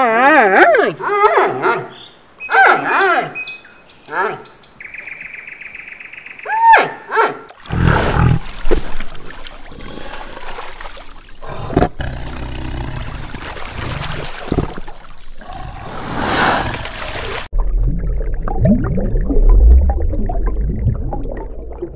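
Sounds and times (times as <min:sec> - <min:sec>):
water splashing: 0:07.5 - 0:21.9
tiger growling and roaring: 0:07.7 - 0:08.5, 0:11.4 - 0:17.2.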